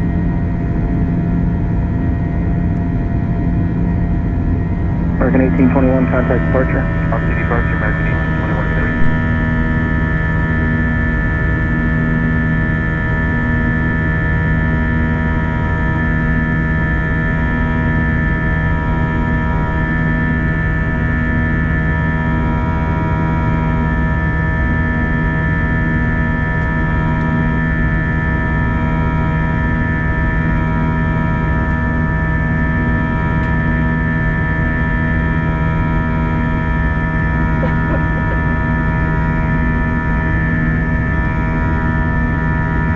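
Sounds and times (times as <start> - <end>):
jet engine and airflow drone: 0.0 - 42.9
pulsing low tone: 4.9 - 9.6.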